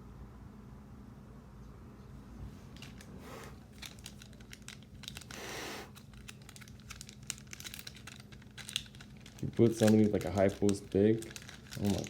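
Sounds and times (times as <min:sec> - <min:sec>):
cards being handled: 0:02.6 - 0:12.0
foil wrapper crinkling: 0:02.8 - 0:12.0.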